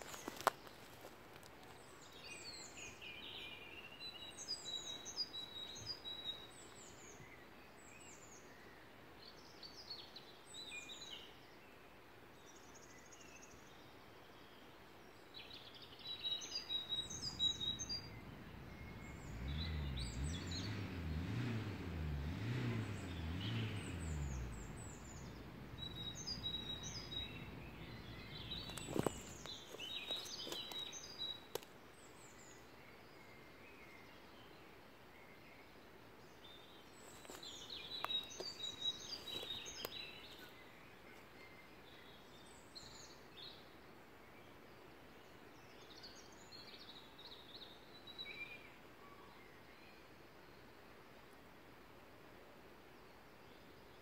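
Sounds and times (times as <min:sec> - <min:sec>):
birds chirping: 0:00.0 - 0:11.8, 0:12.4 - 0:50.7
distant engine drone: 0:16.9 - 0:29.5.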